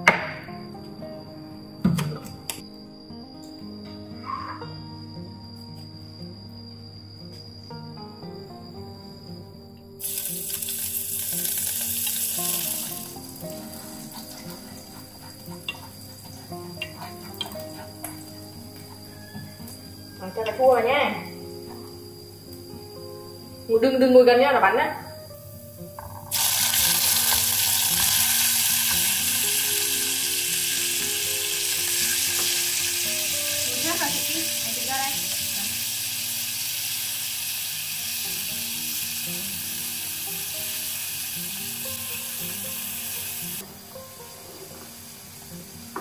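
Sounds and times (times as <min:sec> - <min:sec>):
food sizzling in hot oil: 0:10.0 - 0:20.6, 0:25.7 - 0:46.0
chopsticks stirring food: 0:12.4 - 0:19.4.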